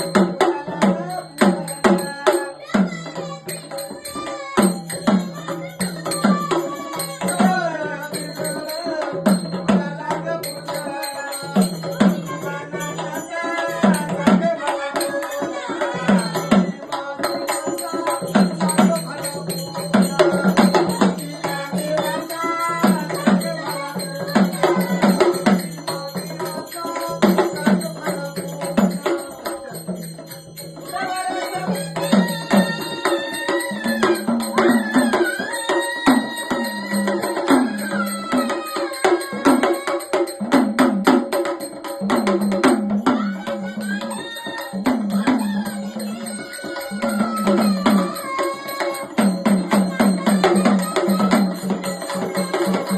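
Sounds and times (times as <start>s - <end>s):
rattling percussion: 0.0s - 52.9s
steady drum beat: 0.0s - 52.9s.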